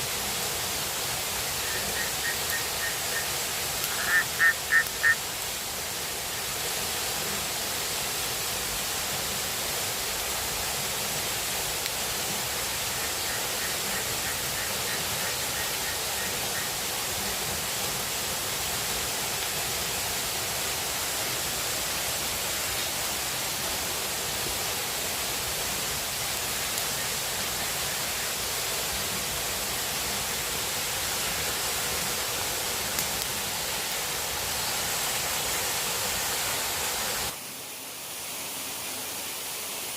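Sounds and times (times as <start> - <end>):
water rushing: 0.0 - 39.9
rapid pulsed calls: 1.4 - 5.2.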